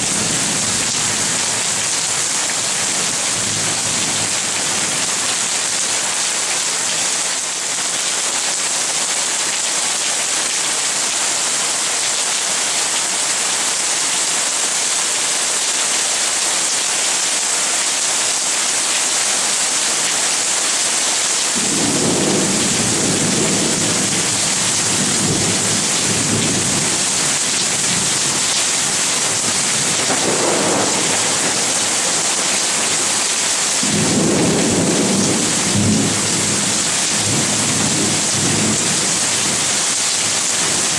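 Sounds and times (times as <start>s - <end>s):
heavy rain hissing: 12.5s - 40.9s
low thunder rumbling: 21.6s - 24.2s, 29.8s - 38.6s.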